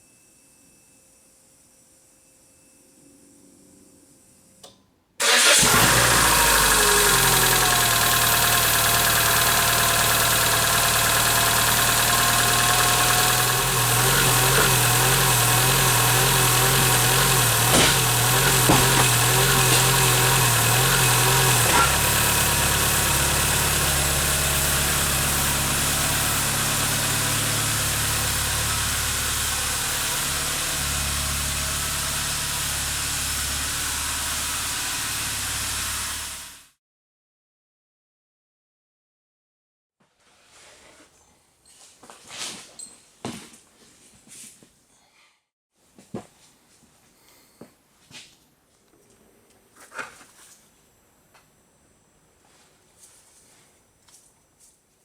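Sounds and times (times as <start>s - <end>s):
car engine idling: 5.2s - 36.6s.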